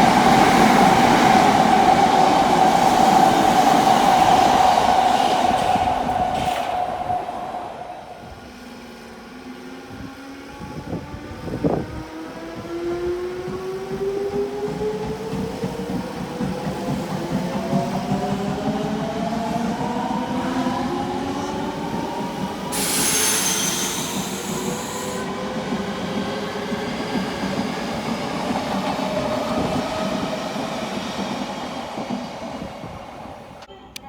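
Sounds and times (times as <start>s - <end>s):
train wheels rumbling on rails: 0.0s - 33.7s
high hissing screech: 22.8s - 25.2s.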